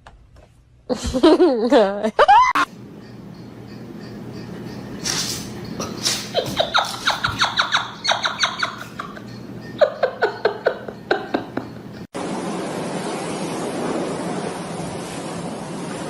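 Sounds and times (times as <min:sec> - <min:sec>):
squeaky animal calls: 0:05.0 - 0:09.4.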